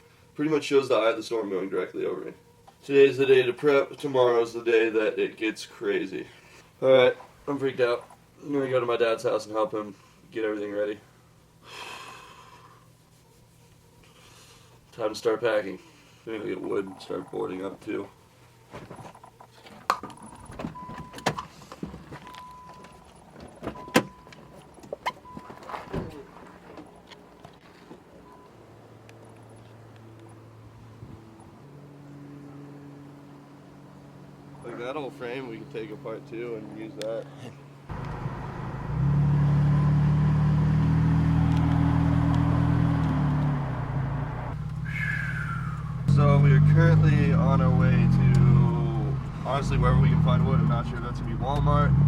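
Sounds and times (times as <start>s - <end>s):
car engine humming: 15.8s - 36.9s, 37.5s - 52.0s.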